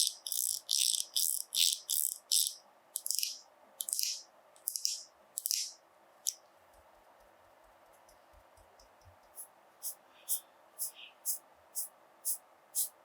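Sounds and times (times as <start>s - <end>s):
hissy scratching strokes: 9.4s - 13.0s.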